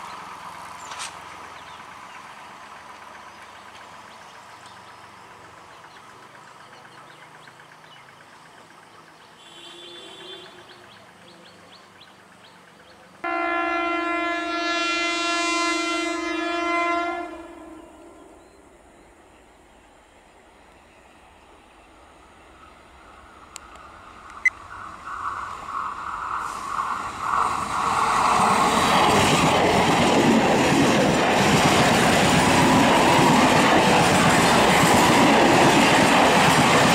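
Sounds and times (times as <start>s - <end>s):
train wheels rumbling and clattering: 0.0s - 9.2s, 22.9s - 36.9s
loud train horn blast: 9.4s - 10.7s, 13.2s - 18.4s
short train horn: 9.4s - 10.7s, 13.2s - 18.4s.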